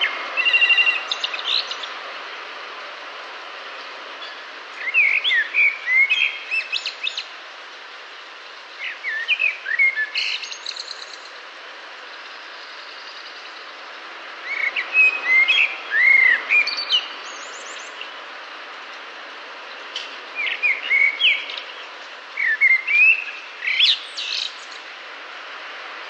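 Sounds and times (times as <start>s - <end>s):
bird singing: 0.0s - 2.0s, 4.2s - 7.3s, 8.7s - 11.3s, 12.1s - 18.1s, 19.7s - 24.9s
background hiss: 0.0s - 26.0s.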